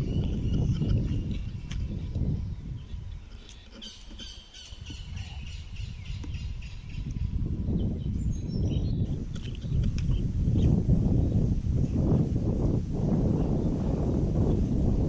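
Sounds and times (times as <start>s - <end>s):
bird chirping: 0.0s - 11.3s
wind rumbling on microphone: 0.0s - 15.0s.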